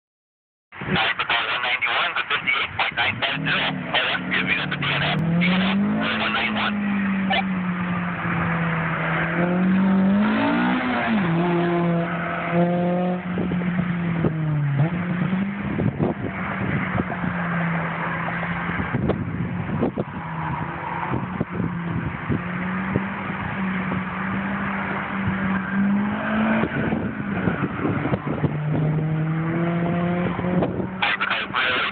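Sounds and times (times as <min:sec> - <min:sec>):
sports car engine revving: 0:00.9 - 0:31.9
tire squeal: 0:02.5 - 0:07.5.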